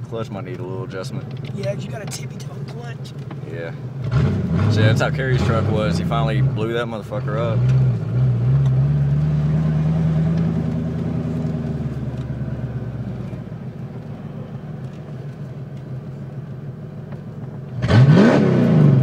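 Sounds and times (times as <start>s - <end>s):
car engine revving: 0.6s - 13.8s, 17.4s - 19.0s.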